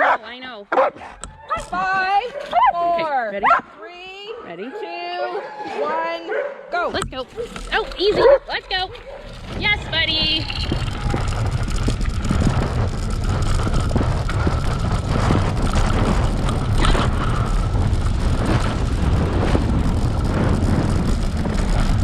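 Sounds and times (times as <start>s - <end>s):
wind on microphone: 4.9s - 22.0s
tyres crackling on dirt: 6.7s - 22.0s.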